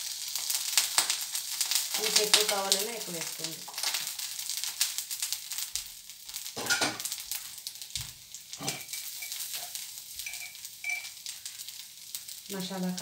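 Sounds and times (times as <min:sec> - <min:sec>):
food sizzling on a griddle: 0:00.0 - 0:13.0
scraping on a griddle: 0:08.6 - 0:10.6.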